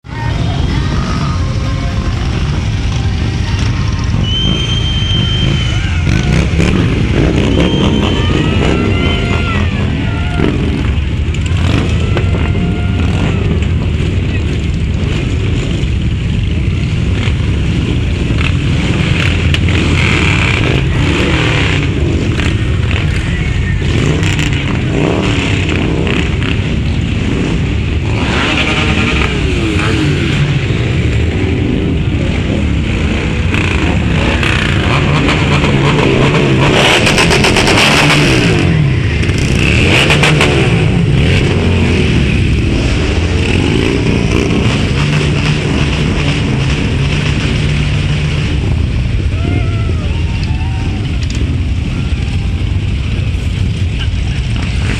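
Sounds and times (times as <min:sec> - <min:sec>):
voices: 0:00.0 - 0:15.4, 0:20.6 - 0:26.2, 0:49.2 - 0:54.9
motorcycle engines revving: 0:00.0 - 0:54.9
motorcycle engines rumbling: 0:00.0 - 0:54.9.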